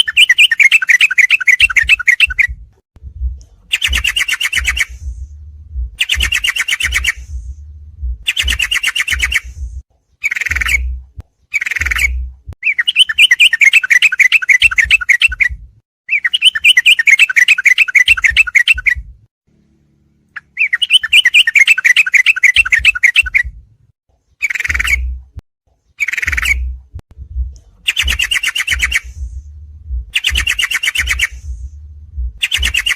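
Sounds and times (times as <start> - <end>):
bird chattering trills: 0.0 - 2.5, 3.8 - 5.0, 6.0 - 7.3, 8.3 - 9.5, 11.5 - 15.5, 16.1 - 19.0, 20.4 - 23.4, 24.4 - 25.0, 26.0 - 26.6, 27.9 - 29.2, 30.1 - 31.5, 32.4 - 32.9
low rumble: 2.5 - 8.7, 9.4 - 9.8, 10.6 - 11.2, 26.6 - 28.2, 29.0 - 30.6, 31.3 - 32.8.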